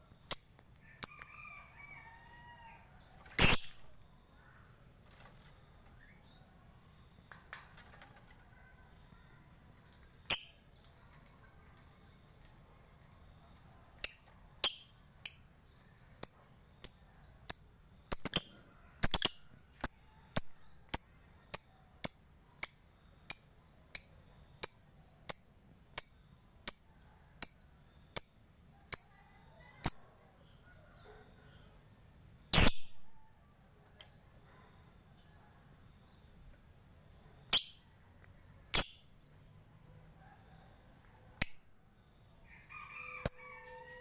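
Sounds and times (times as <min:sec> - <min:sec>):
bird ticking calls: 0:00.3 - 0:01.3, 0:16.2 - 0:28.4.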